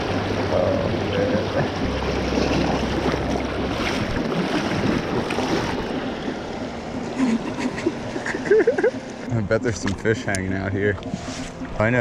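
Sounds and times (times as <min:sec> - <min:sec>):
wind rumble on microphone: 0:00.0 - 0:08.8
creek water rushing and splashing: 0:00.0 - 0:12.0.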